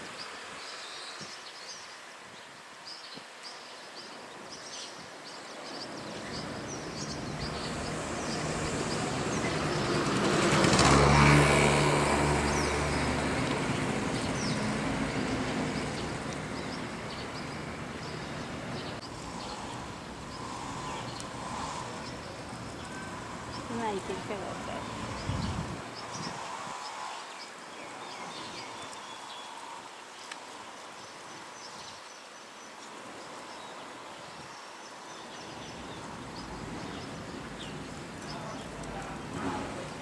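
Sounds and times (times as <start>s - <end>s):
small birds chirping: 0.0s - 40.0s
motor vehicle passing by: 6.3s - 27.2s.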